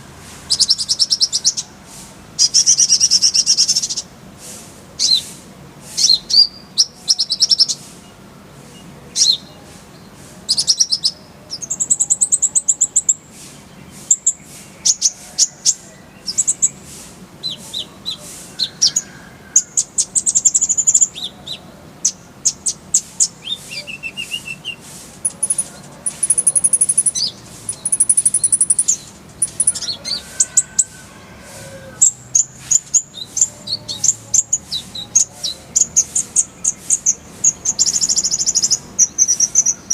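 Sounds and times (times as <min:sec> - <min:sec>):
bird singing chirps and trills: 0:00.5 - 0:01.8, 0:02.4 - 0:04.1, 0:06.0 - 0:30.9, 0:32.0 - 0:39.9.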